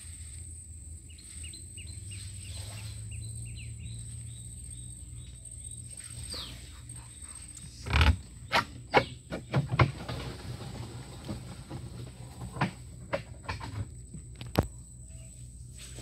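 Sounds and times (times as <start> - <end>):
steady low hum: 0.0 - 9.5, 10.2 - 16.0
bird chirping: 1.0 - 9.8.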